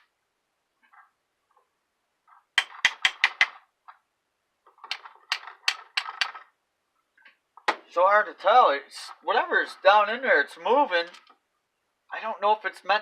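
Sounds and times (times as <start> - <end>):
sharp metallic tapping: 2.6 - 3.6, 4.9 - 6.4.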